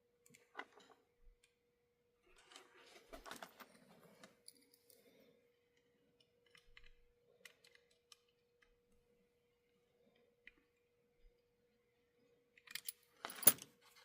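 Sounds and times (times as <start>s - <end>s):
faint steady hum: 0.0s - 14.0s
small parts clicking and tapping: 2.4s - 9.0s, 10.0s - 11.4s, 12.5s - 14.0s.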